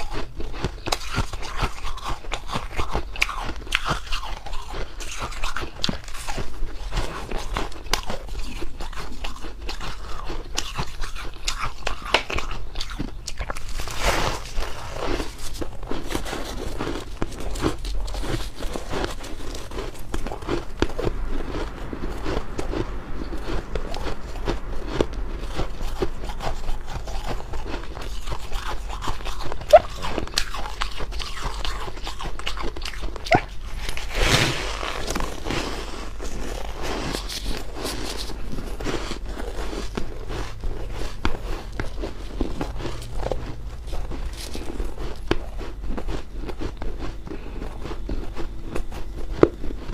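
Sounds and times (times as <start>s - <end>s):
ice crunching being chewed: 0.0s - 49.9s
low hum: 13.5s - 49.9s.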